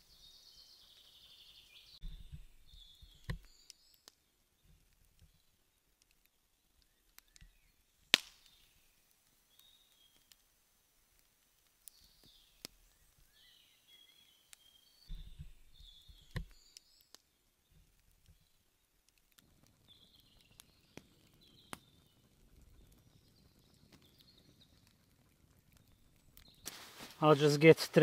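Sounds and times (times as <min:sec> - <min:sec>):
small sharp clicks: 0:15.9 - 0:26.8.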